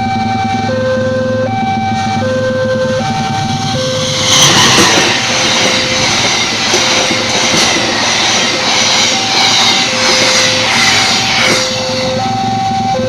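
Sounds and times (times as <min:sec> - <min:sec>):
two-tone electronic warning signal: 0:00.0 - 0:13.0
train passing with rumble: 0:01.7 - 0:13.0
train wheel clacks: 0:03.4 - 0:12.3.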